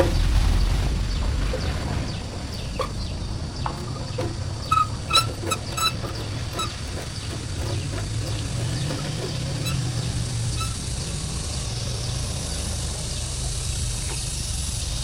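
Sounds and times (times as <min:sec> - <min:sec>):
engine running with low rumble: 0:00.0 - 0:15.0
hiss: 0:08.7 - 0:15.0.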